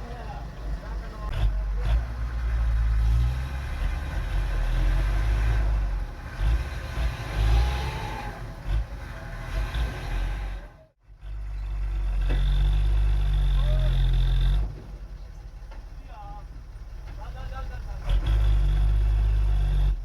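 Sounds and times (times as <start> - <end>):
truck diesel engine revving: 0.0 - 20.0.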